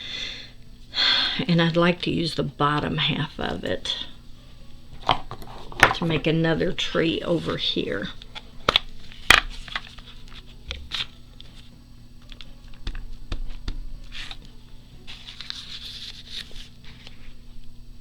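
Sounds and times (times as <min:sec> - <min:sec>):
paper rustling: 0:04.9 - 0:17.6.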